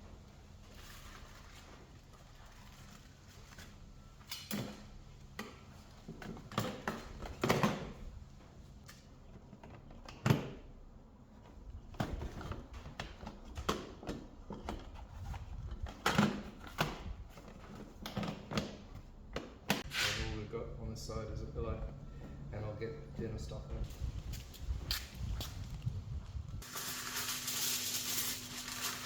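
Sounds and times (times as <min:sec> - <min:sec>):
rustling: 0:24.2 - 0:29.0.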